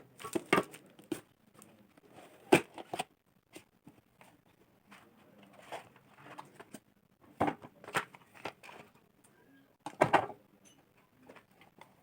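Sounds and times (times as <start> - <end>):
cardboard and plastic rustling: 0.1 - 9.0.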